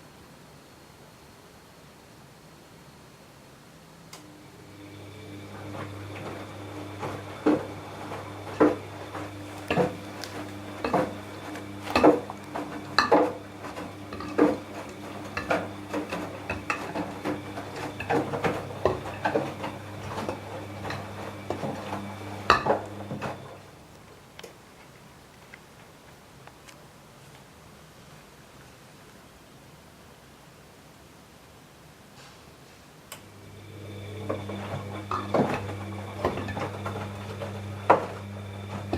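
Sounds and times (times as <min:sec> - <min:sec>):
washing machine motor hum: 0:04.2 - 0:24.0, 0:33.2 - 0:38.9.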